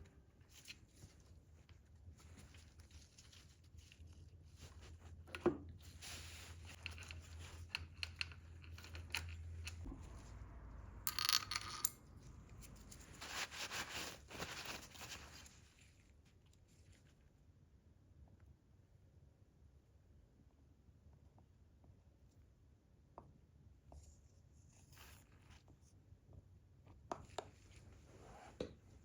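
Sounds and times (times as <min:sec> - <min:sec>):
low steady hum: 0:00.0 - 0:22.8.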